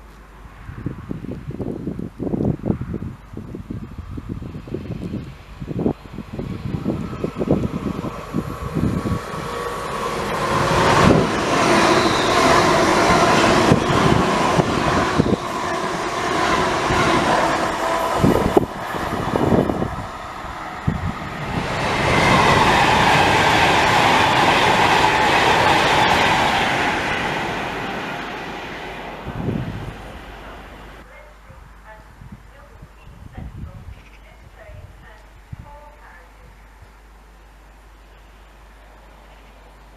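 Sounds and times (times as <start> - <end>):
train high whine: 3.9 - 31.0
train wheels on rails: 4.7 - 31.0.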